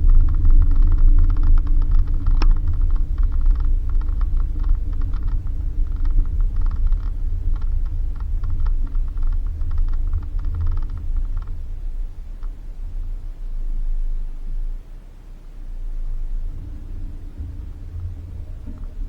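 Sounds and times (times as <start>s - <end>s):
rattling clicks from car body: 0.0s - 12.6s
engine and tyres rumbling: 0.0s - 19.0s.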